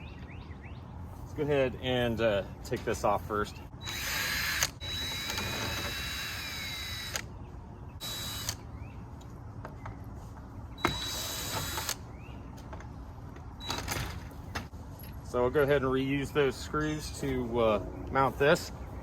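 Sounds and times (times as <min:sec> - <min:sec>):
power drill motor whine: 0:03.8 - 0:07.2, 0:08.0 - 0:08.6, 0:10.8 - 0:12.0.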